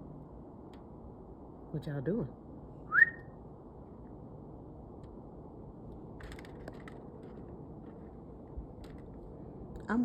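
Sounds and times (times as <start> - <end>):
low wind noise: 0.0 - 10.0
faint crackles and scrapes: 5.8 - 10.0.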